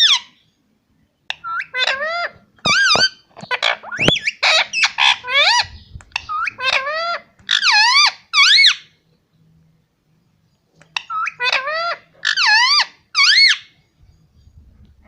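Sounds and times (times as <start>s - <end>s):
parrot warbling calls: 1.3s - 8.9s, 11.0s - 13.8s.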